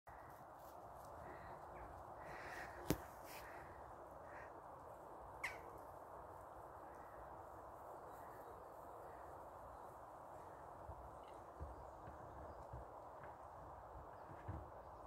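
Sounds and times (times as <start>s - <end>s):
distant bird calls: 1.2s - 6.0s.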